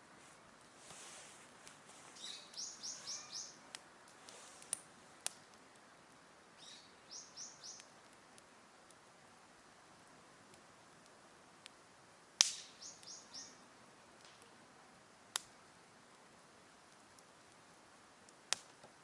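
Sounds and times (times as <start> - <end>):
campfire crackles: 0.0 - 19.0
bird calling rapid high notes: 2.3 - 3.6.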